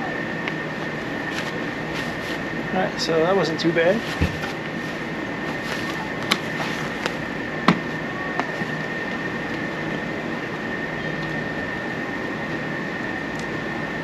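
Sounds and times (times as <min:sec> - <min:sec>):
machine hum with high whine: 0:00.0 - 0:14.0.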